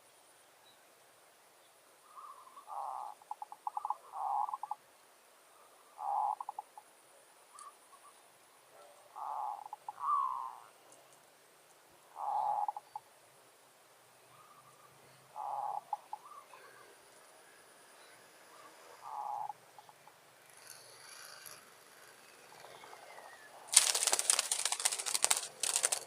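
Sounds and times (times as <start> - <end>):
doves cooing: 2.1 - 4.8, 5.8 - 6.8, 9.1 - 10.7, 12.1 - 13.0, 15.4 - 16.9, 18.5 - 20.0, 22.6 - 26.0.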